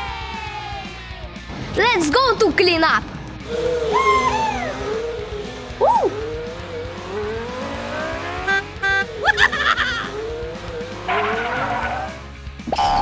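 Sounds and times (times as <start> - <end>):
background music: 0.0 - 13.0
rising engine-like whine: 3.0 - 13.0
upward whistle slides: 3.5 - 6.6.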